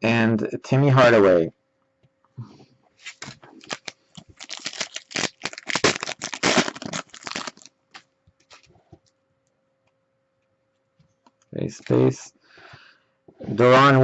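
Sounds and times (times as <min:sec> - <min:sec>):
trading cards rustling and clicking: 0:03.0 - 0:08.7.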